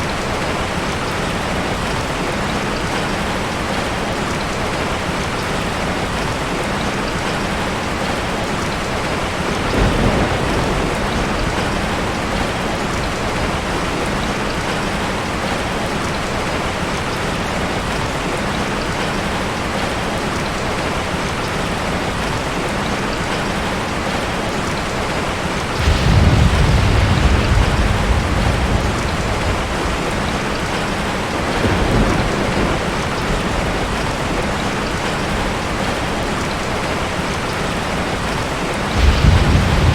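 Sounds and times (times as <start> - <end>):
steady rain: 0.0 - 39.9
thunder rumbling: 9.4 - 15.8, 25.6 - 39.9.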